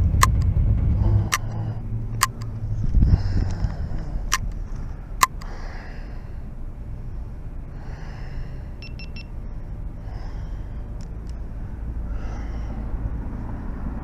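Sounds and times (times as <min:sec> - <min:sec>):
steady low rumble: 0:00.0 - 0:14.0
sharp clicks: 0:00.1 - 0:00.5, 0:02.2 - 0:02.6, 0:04.3 - 0:05.5
soft breathy noise: 0:05.4 - 0:08.8, 0:09.6 - 0:14.0.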